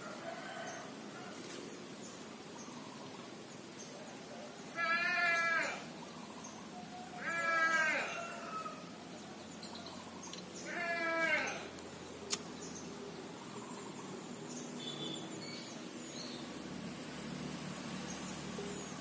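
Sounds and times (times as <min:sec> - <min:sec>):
animal bleating: 0:04.7 - 0:05.9, 0:07.2 - 0:08.3, 0:10.6 - 0:11.7
sharp click: 0:12.3 - 0:12.5.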